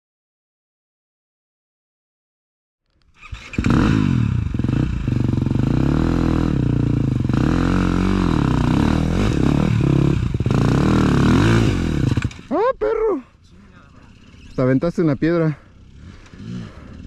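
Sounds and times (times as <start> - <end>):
dirt bike engine revving: 3.2 - 12.7, 14.0 - 17.0.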